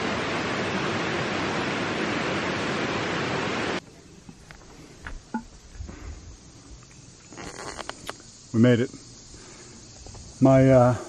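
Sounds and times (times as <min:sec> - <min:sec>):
river rushing: 0:00.0 - 0:03.8.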